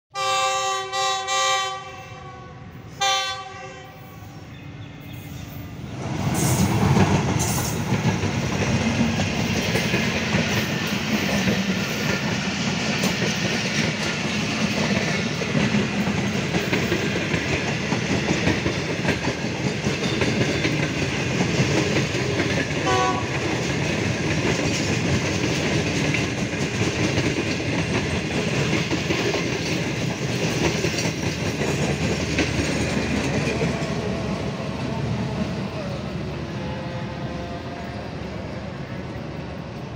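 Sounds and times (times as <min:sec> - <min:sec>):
train horn blasts: 0:00.1 - 0:04.5, 0:22.8 - 0:23.5, 0:36.4 - 0:38.4
train rumble and wheel clatter: 0:00.2 - 0:39.9.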